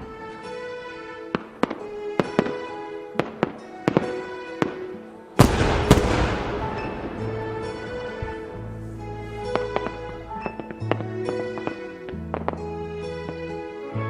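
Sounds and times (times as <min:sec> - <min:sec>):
music with held tones: 0:00.0 - 0:14.0
fireworks crackling barrage: 0:01.2 - 0:12.7
fireworks bangs: 0:05.4 - 0:08.8.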